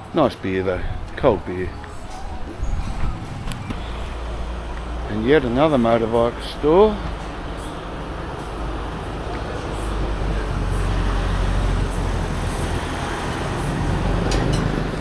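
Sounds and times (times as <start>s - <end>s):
road noise: 0.0s - 15.0s
vehicle engine rumble: 0.7s - 15.0s.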